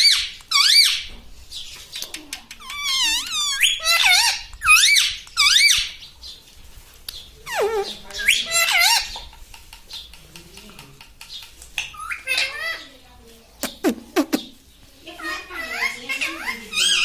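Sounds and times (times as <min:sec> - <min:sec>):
parakeet squeaky calls: 0:00.0 - 0:01.1, 0:02.6 - 0:06.0, 0:07.5 - 0:09.2.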